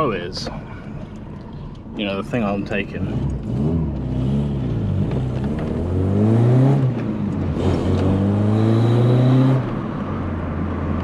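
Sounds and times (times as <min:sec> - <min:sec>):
car engine accelerating: 0:02.8 - 0:11.0.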